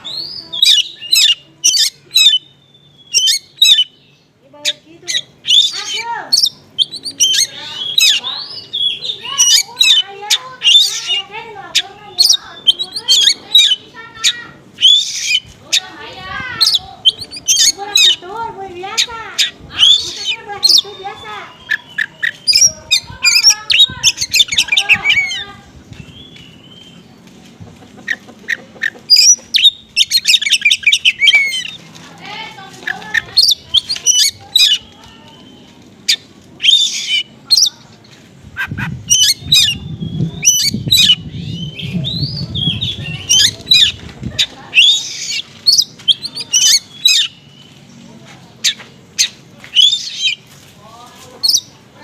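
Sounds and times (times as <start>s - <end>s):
small birds chirping and trilling: 0.0s - 52.0s
low rumble: 38.4s - 44.4s.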